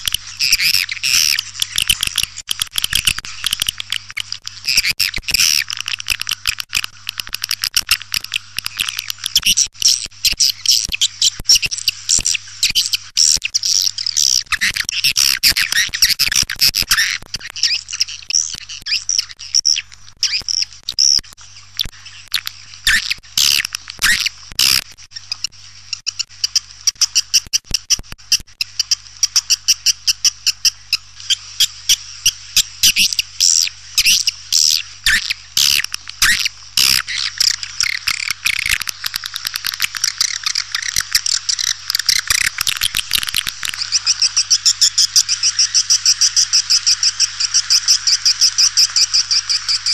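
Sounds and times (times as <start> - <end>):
swiftlets twittering: 32.9 - 49.9.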